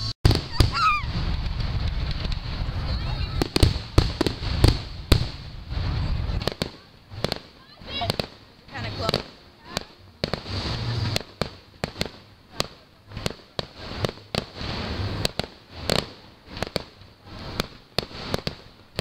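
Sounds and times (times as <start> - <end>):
fireworks bangs and crackles: 0.0 - 19.0
rumbling booms: 0.2 - 8.2.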